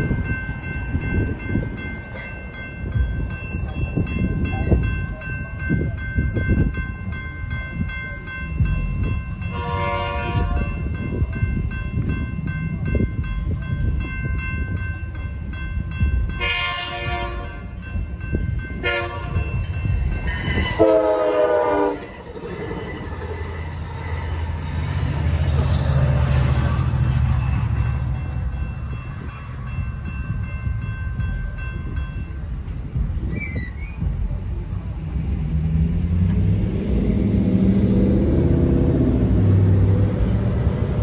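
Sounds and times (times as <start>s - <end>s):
crossing bells ringing: 0.0s - 33.4s
train rumbling over rails: 0.0s - 41.0s
train horn blasts: 9.5s - 10.8s, 16.4s - 17.8s, 18.8s - 19.6s, 20.4s - 22.3s.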